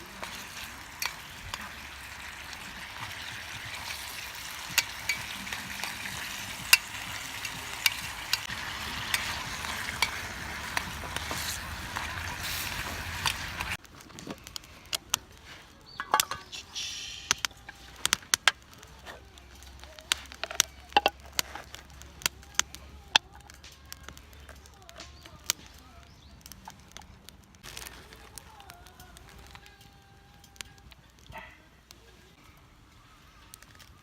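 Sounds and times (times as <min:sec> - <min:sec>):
pork sizzling in a pan: 0:00.0 - 0:13.8, 0:15.7 - 0:23.3
utensil clicking against pan: 0:02.5 - 0:13.8.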